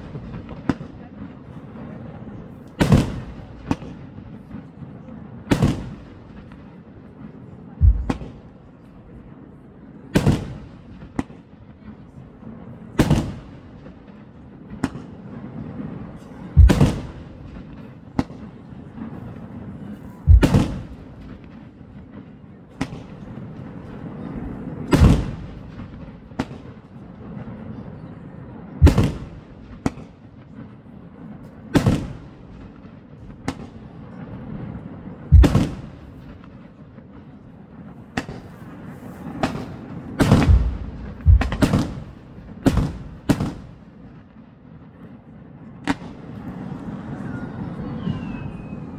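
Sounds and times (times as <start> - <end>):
fireworks bangs: 0.0 - 1.4, 2.6 - 4.8, 5.4 - 6.8, 7.8 - 9.3, 10.1 - 11.5, 13.0 - 19.4, 20.2 - 22.1, 22.8 - 27.6, 28.8 - 30.7, 31.4 - 44.4, 45.8 - 48.9
fireworks cracks: 2.7 - 4.1, 5.5 - 6.6, 7.8 - 8.6, 16.6 - 18.4, 20.3 - 21.6, 24.9 - 26.6, 28.8 - 30.2, 31.8 - 32.8, 35.3 - 36.6, 38.2 - 44.0.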